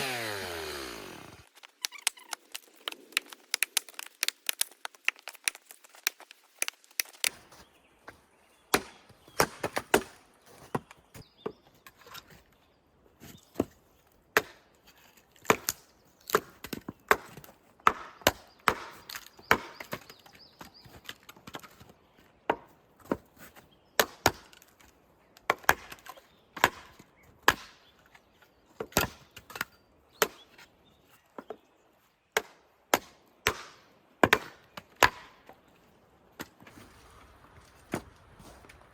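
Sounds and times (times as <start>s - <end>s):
blade chopping wood: 8.7s - 10.9s, 15.4s - 20.2s, 25.4s - 27.8s, 32.4s - 35.5s.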